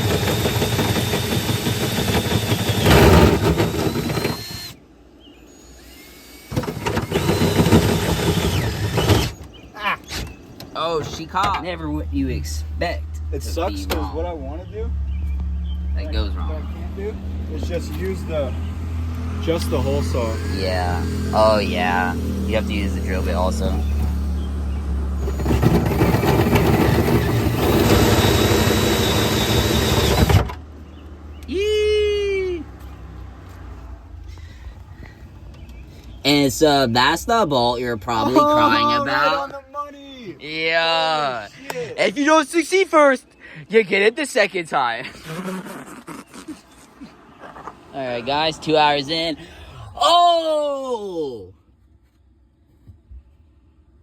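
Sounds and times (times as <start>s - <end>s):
power drill cutting metal: 0.0s - 4.8s, 5.8s - 9.5s, 25.2s - 30.6s.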